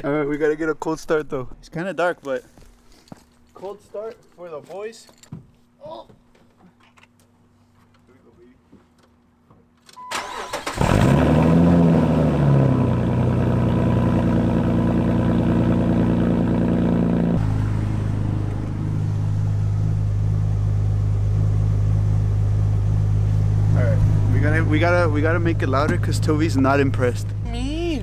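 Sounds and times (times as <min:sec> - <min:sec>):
engine starter cranking: 0:10.0 - 0:11.4
car engine revving and idling: 0:10.6 - 0:28.0.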